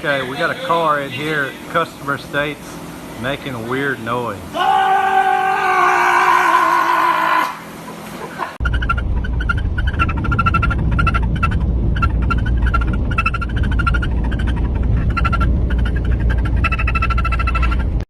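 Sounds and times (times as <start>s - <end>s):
car running low rumble: 8.6s - 18.0s
high-pitched chirping squeak: 8.6s - 18.0s.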